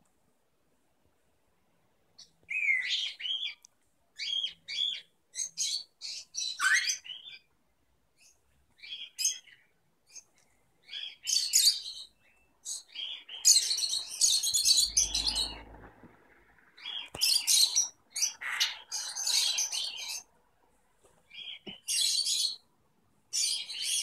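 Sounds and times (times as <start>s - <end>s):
songbird singing: 2.2s - 7.5s, 8.2s - 15.9s, 16.6s - 20.4s, 21.2s - 22.7s, 23.3s - 24.0s.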